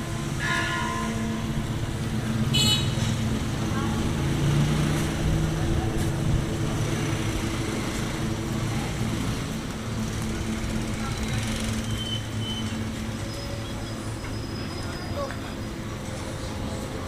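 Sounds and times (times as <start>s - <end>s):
traffic: 0.0s - 17.0s
vehicle engine running: 1.5s - 14.2s.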